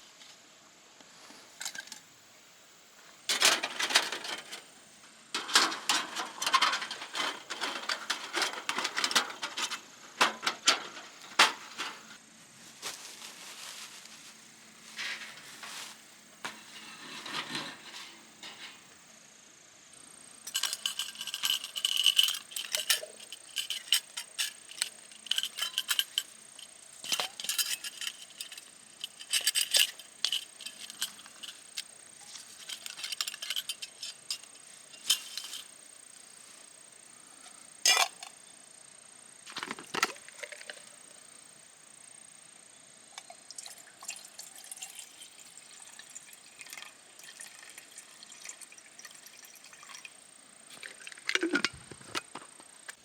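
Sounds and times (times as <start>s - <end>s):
metal gear clinking and clattering: 3.3s - 4.6s, 5.4s - 12.1s, 20.5s - 35.8s.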